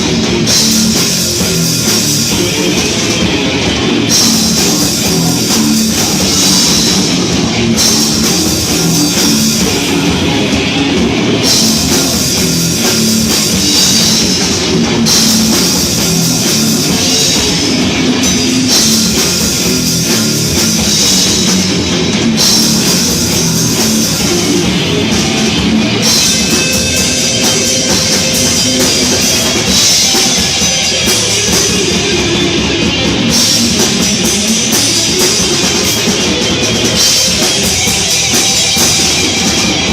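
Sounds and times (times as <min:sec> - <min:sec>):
heavy metal band playing live: 0:00.0 - 0:39.9.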